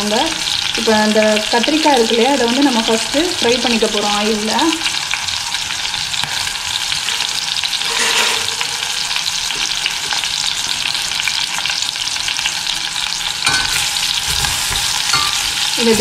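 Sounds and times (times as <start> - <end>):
food frying in hot oil: 0.0 - 16.0.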